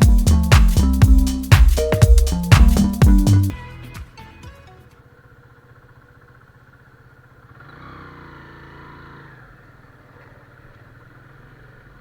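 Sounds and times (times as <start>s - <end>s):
motorcycle engine running: 5.0s - 12.0s.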